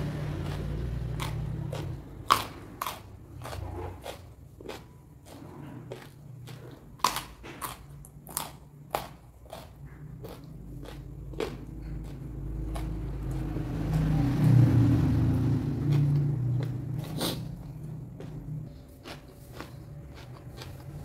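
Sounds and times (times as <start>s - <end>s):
crunchy chewing of raw vegetables: 0.0s - 21.0s
low rumble: 11.1s - 18.9s.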